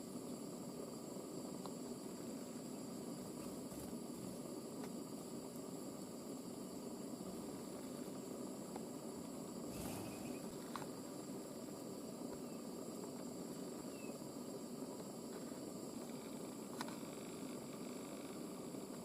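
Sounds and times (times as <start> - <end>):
background hiss: 0.0 - 19.0
faint high chirps: 9.7 - 10.6, 13.8 - 14.2.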